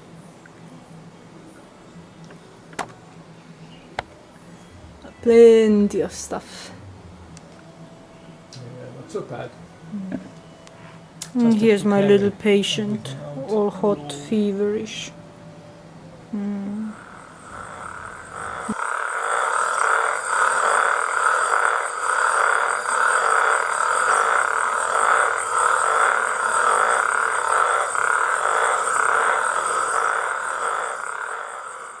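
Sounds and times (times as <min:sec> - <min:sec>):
high-pitched whine: 0:11.4 - 0:32.0
frogs calling: 0:16.8 - 0:32.0.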